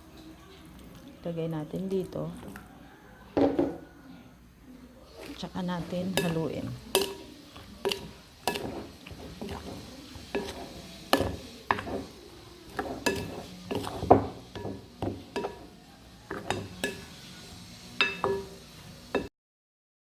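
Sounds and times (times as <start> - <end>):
soft scraping in bowl: 5.0 - 6.4, 7.0 - 17.4.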